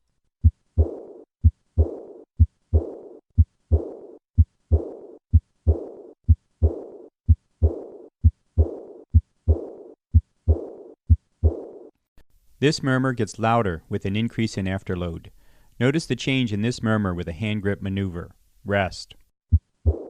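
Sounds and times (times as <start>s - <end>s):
high-pitched blowing heart murmur: 0.4s - 11.8s
heartbeat through stethoscope: 0.4s - 11.9s, 19.5s - 20.0s.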